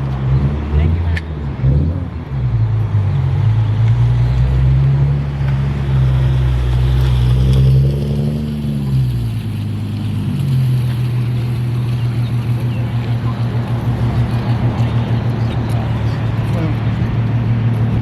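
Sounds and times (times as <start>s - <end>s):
car engine running: 8.5s - 18.0s.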